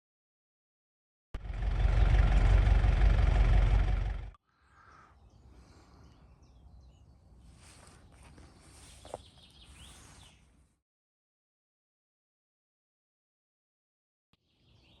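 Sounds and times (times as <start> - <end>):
car interior driving rumble: 1.4 - 4.4
bird chirps: 4.4 - 10.5, 14.4 - 15.0.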